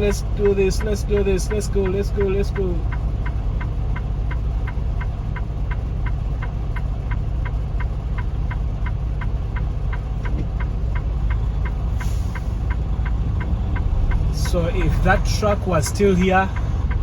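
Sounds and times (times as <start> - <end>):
diesel engine rumbling: 0.0 - 17.0
sharp ticking: 0.0 - 17.0.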